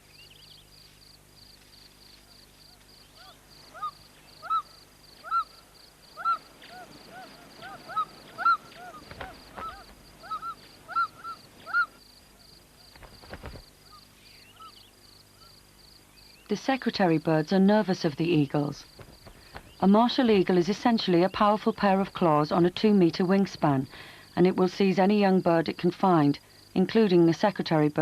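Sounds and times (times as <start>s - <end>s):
insects chirping: 0.0s - 28.0s
bird calling: 2.2s - 16.5s, 18.8s - 20.6s.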